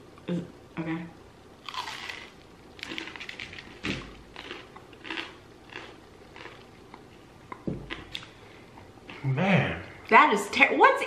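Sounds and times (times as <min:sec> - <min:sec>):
person chewing crisp cracker: 0:01.6 - 0:08.4.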